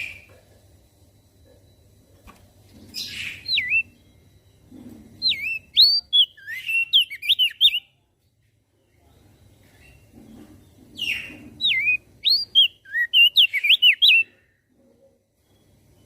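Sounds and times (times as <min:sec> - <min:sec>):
harsh bird chirp: 0:02.8 - 0:08.0, 0:09.6 - 0:14.5
bird singing whistled notes: 0:02.9 - 0:04.6, 0:05.2 - 0:08.0, 0:11.0 - 0:14.4.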